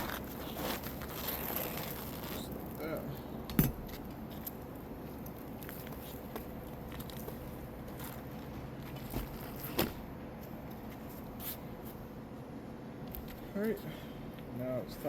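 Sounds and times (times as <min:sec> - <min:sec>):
scraping and crackling shingle: 0:00.0 - 0:02.8.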